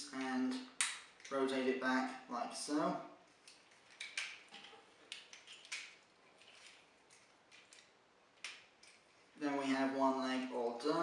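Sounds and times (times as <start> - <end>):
plastic parts clicking and rubbing: 3.3 - 9.2.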